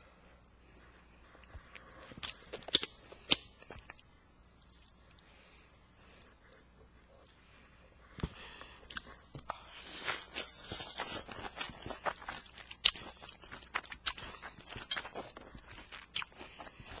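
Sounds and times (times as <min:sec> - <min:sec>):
chewing and crunching: 0:00.8 - 0:05.3, 0:08.6 - 0:17.0.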